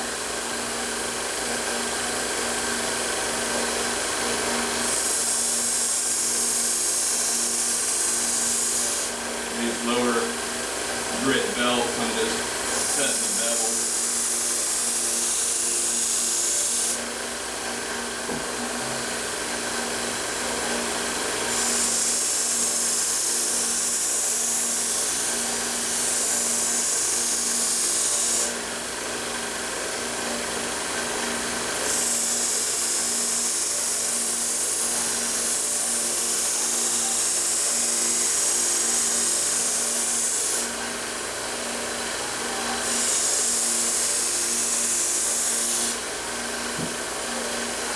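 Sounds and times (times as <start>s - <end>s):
belt grinder motor hum: 4.8s - 17.1s
sanding belt grinding steel: 11.2s - 17.0s.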